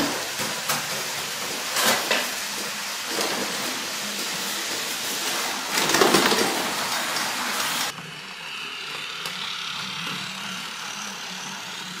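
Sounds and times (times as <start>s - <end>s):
toy train motor whirring: 0.0s - 12.0s
toy train wheels rattling: 5.7s - 12.0s.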